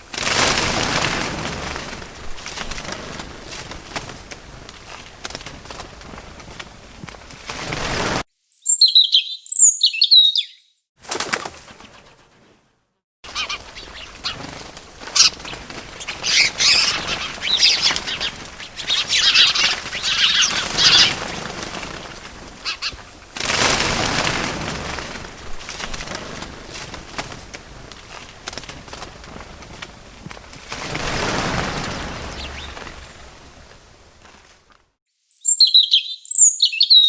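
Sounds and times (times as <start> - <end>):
wing flapping: 0.0 - 8.3, 11.0 - 35.0
small birds chirping: 8.4 - 10.8, 13.3 - 23.3, 27.8 - 34.4, 35.2 - 37.0.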